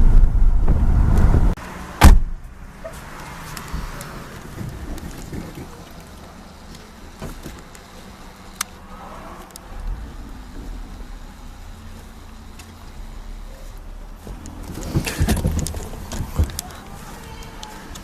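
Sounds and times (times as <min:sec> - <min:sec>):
car engine rumbling: 0:00.0 - 0:18.0
clicks: 0:02.9 - 0:11.1, 0:12.0 - 0:18.0.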